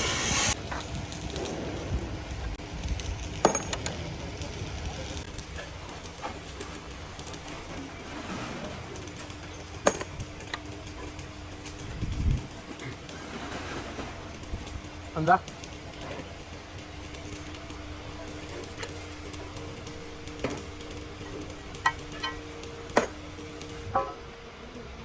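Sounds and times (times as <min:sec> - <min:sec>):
metallic clinks of tools: 0:09.8 - 0:10.6.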